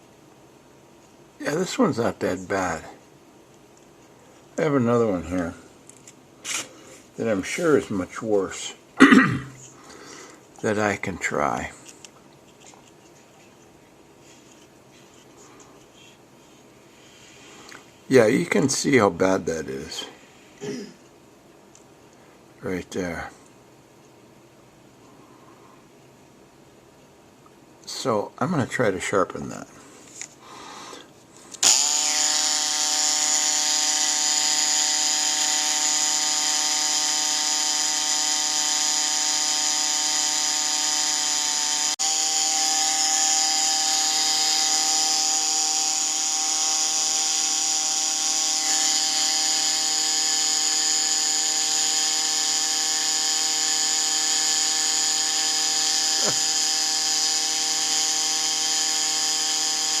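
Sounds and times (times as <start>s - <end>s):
rotary tool whining: 31.5s - 60.0s.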